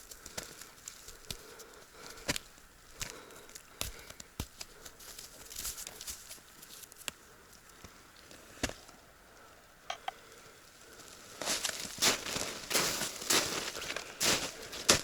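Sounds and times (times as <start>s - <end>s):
footsteps on dry leaves and twigs: 0.0s - 7.1s, 10.8s - 15.0s.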